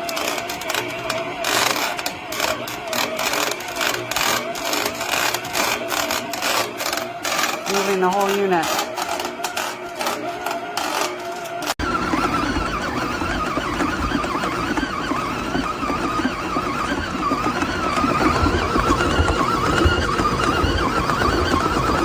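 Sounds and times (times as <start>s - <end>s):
stand mixer running: 0.0s - 22.0s.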